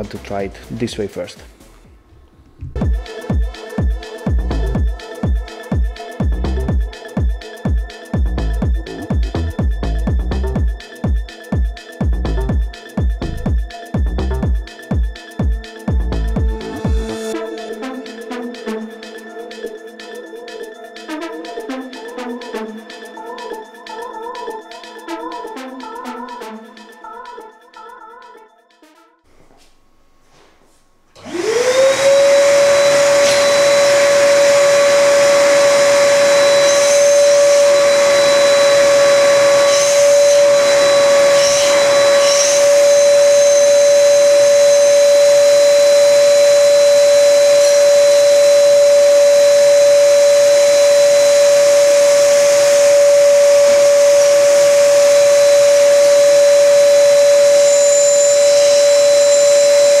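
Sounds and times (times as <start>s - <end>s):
vacuum cleaner motor whine: 15.4s - 19.6s, 31.2s - 60.0s.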